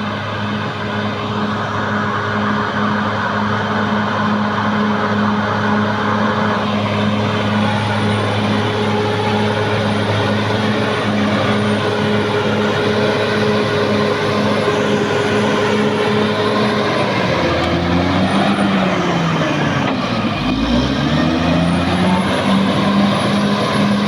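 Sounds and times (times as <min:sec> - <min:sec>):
bulldozer diesel engine droning: 0:00.0 - 0:24.0.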